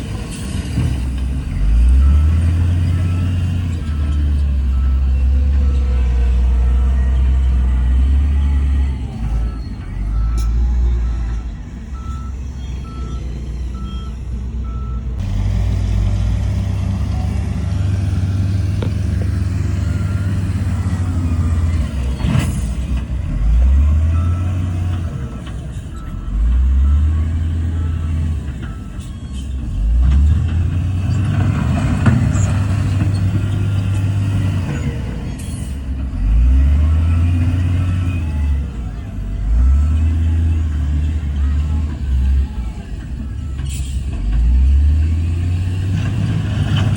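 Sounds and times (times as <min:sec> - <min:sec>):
heavy diesel engine revving: 0:00.0 - 0:46.9
reversing alarm beeping: 0:01.5 - 0:15.2, 0:17.0 - 0:29.9.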